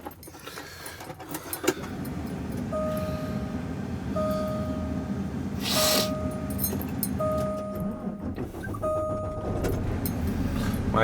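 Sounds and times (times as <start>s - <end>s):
diesel truck engine idling: 1.8s - 11.0s
electronic warning beep: 2.7s - 9.8s.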